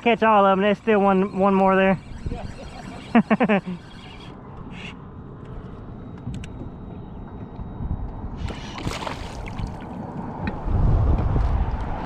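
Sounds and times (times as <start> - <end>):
water lapping against kayak: 8.5 - 10.1.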